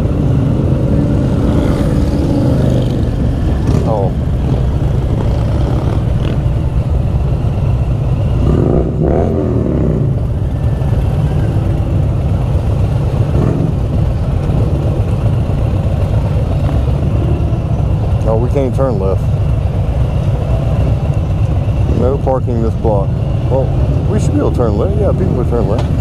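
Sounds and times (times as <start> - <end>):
motorcycle engine revving: 0.0 - 20.0
motorcycle engines in traffic: 0.0 - 26.0.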